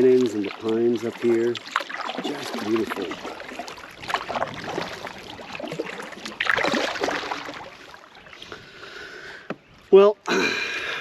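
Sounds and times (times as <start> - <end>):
water dripping from paddle: 0.0 - 8.7
paddle strokes in water: 0.0 - 9.7.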